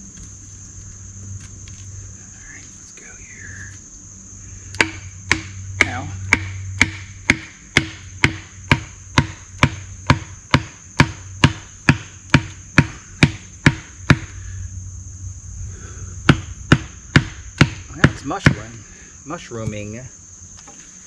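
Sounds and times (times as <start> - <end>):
insects droning: 0.0 - 21.0
axe splitting wood: 4.8 - 14.3, 16.3 - 18.7.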